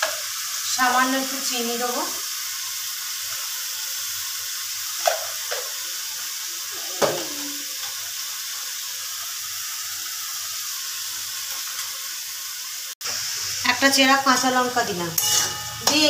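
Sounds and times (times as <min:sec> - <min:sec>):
vegetables sizzling in a pan: 0:00.0 - 0:16.0
spatula scraping a pan: 0:15.2 - 0:16.0.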